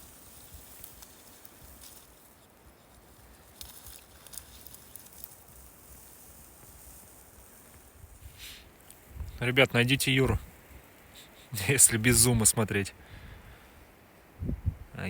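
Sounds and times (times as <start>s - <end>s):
wind rumble on microphone: 9.0s - 9.4s, 14.4s - 15.0s.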